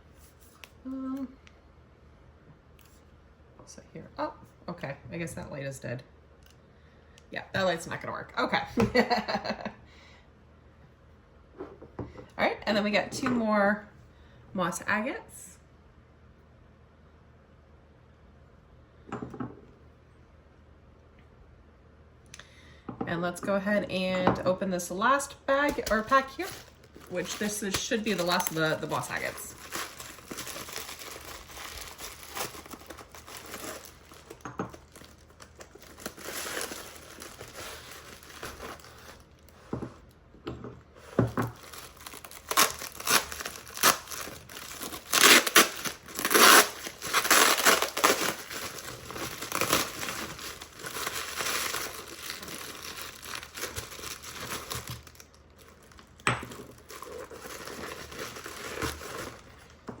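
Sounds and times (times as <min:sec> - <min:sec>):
plastic wrapping crinkling and tearing: 0:25.6 - 0:39.6, 0:41.4 - 0:59.8.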